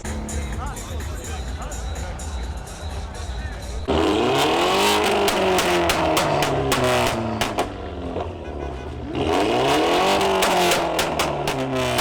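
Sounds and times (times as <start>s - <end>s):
music playing: 0.0s - 8.0s
car engine revving: 0.0s - 12.0s.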